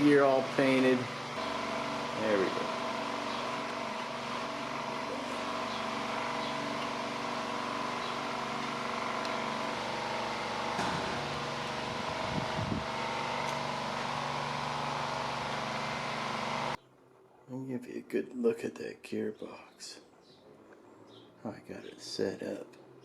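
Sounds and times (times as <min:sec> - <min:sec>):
mechanical hum: 0:00.0 - 0:17.8.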